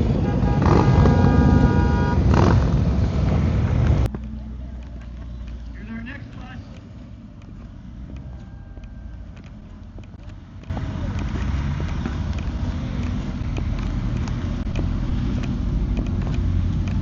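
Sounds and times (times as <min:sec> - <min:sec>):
motorcycle engine running: 0:07.4 - 0:17.0.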